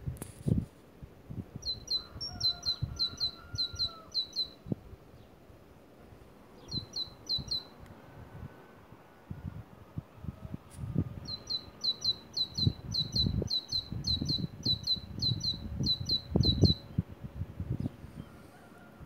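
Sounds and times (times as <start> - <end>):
bird chirping: 1.6 - 4.6, 6.6 - 7.8, 11.2 - 17.0.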